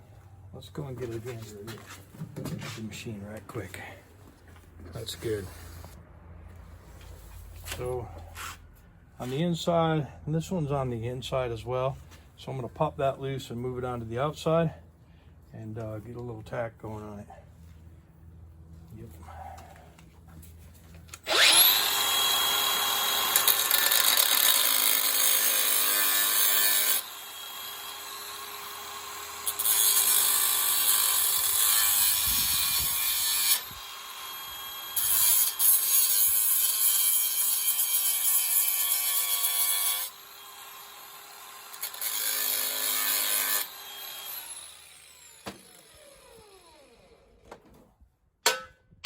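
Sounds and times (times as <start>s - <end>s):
angle grinder grinding steel: 21.2s - 28.4s, 29.4s - 46.3s.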